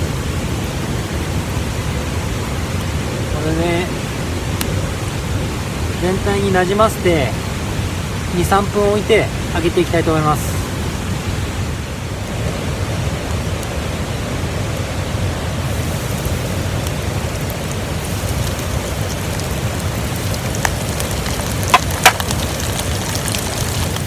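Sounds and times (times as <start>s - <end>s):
food deep-frying in oil: 15.6s - 24.0s
oil popping: 15.6s - 24.0s.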